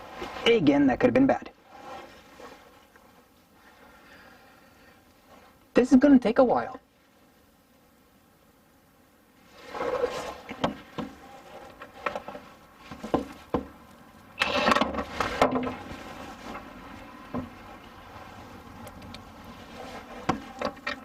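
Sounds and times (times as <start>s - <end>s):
scraping: 9.5s - 21.0s
knocks: 13.0s - 13.8s.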